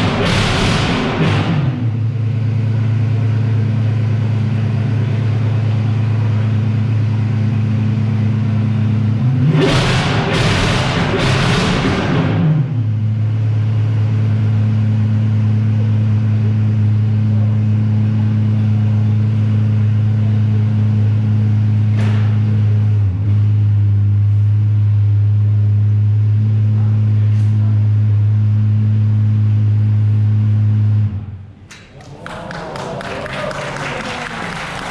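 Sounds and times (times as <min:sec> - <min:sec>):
car engine revving and idling: 0:00.0 - 0:31.7.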